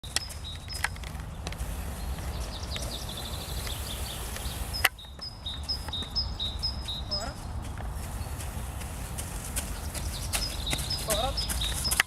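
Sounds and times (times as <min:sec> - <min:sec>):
songbirds chirping: 0:00.0 - 0:12.0
bird trill: 0:02.0 - 0:07.5, 0:09.6 - 0:12.0.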